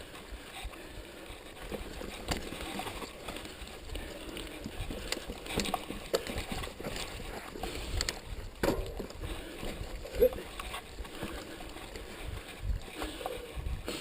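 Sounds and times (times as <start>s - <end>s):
bike tyres on dirt: 0.0s - 14.0s
bike clattering and knocking: 1.6s - 11.9s.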